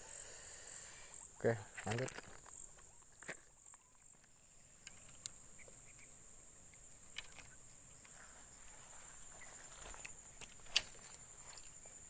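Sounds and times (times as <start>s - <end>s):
high-pitched insect drone: 0.0s - 4.2s.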